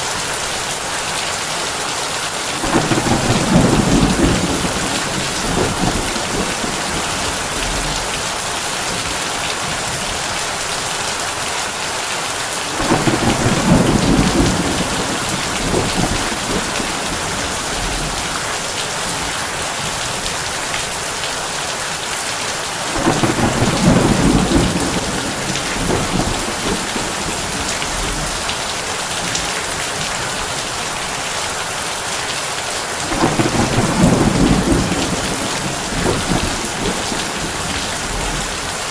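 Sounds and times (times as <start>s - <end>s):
heavy rain on a tin roof: 0.0s - 38.9s
thunder rumbling: 2.5s - 10.9s, 12.6s - 20.8s, 22.9s - 30.7s, 33.0s - 38.9s.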